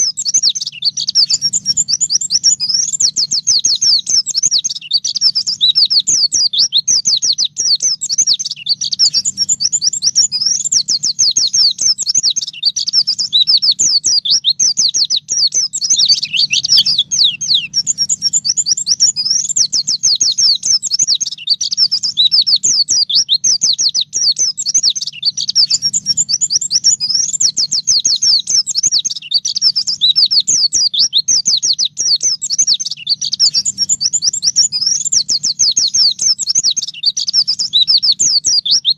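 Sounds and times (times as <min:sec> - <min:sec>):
bird twittering rapidly: 0:00.0 - 0:38.9
faint low hum: 0:15.4 - 0:20.4.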